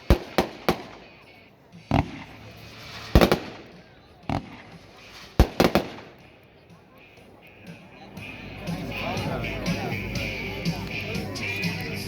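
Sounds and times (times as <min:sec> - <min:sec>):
fireworks firing sharp reports: 0:00.0 - 0:06.6.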